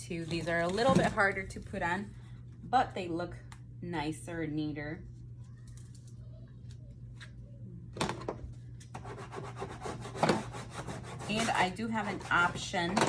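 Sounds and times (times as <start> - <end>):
steady low hum: 0.0 - 13.0
scratchy rubbing handling noise: 9.0 - 12.7.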